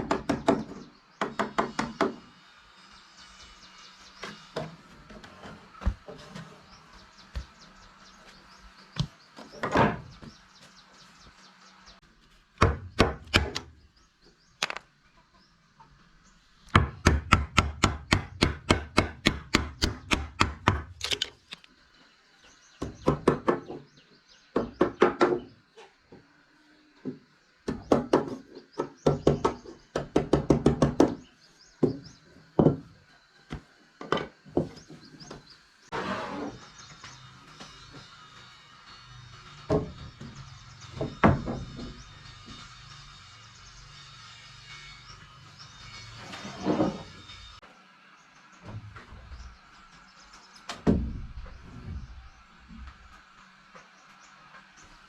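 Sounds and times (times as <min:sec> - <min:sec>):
hand tool striking wood: 0:12.6 - 0:13.7, 0:16.7 - 0:21.7.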